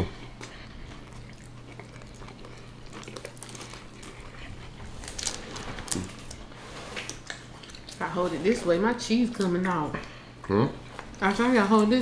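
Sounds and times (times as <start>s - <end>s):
wet chewing: 0.1s - 8.2s.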